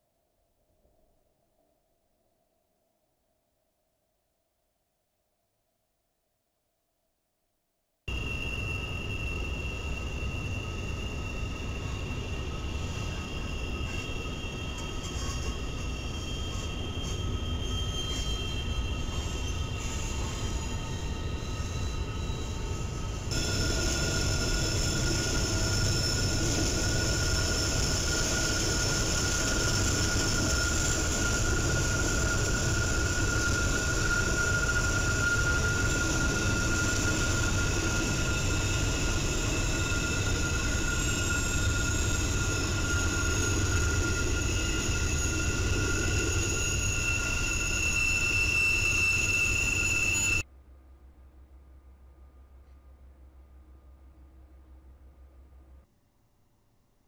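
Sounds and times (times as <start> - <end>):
high-pitched wheel squeal: 8.1 - 50.4.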